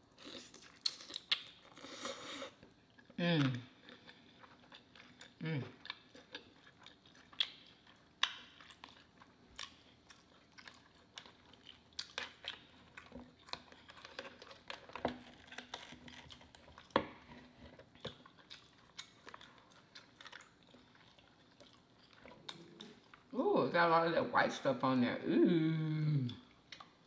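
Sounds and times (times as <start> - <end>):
wet chewing and mouth smacks: 0.2 - 3.2, 3.8 - 23.3, 26.3 - 27.0.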